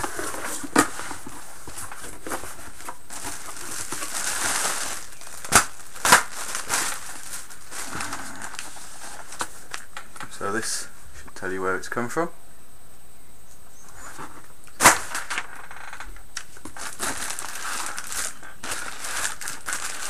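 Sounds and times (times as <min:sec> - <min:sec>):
packing material rustling: 0:00.0 - 0:10.4, 0:16.4 - 0:20.0.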